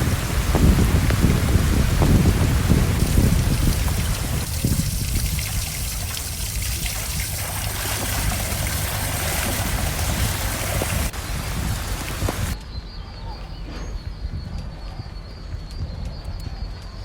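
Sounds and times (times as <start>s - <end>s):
running water rushing: 0.0s - 12.6s.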